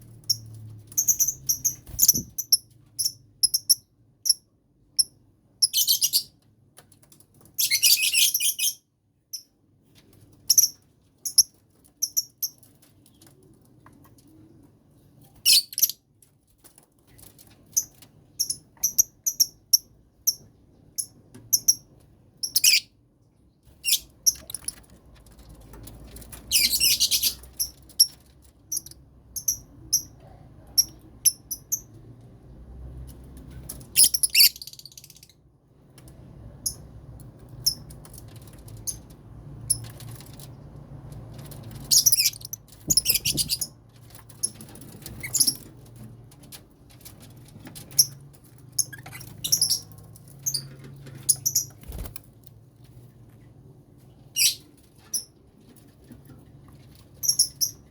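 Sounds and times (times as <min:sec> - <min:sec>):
lovebirds chirping: 0:00.2 - 0:03.8, 0:15.5 - 0:16.0, 0:26.5 - 0:27.7, 0:33.9 - 0:35.3, 0:41.8 - 0:43.7.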